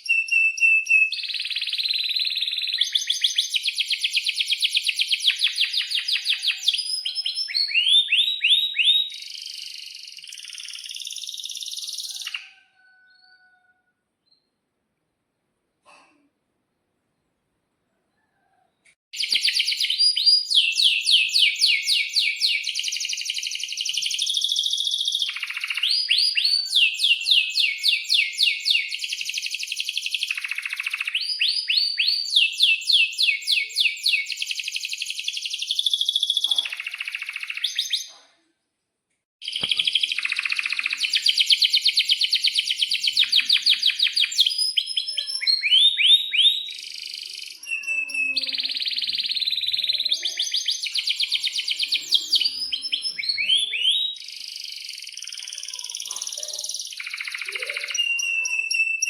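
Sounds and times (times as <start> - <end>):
canary singing trills: 0.0 - 14.5, 19.2 - 38.2, 39.4 - 59.0.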